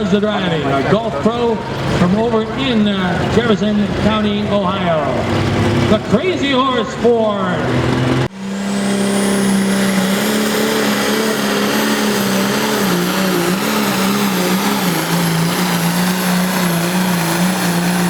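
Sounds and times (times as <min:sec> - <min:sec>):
tractor engine running hard: 0:00.0 - 0:18.0
high whine: 0:08.1 - 0:18.0.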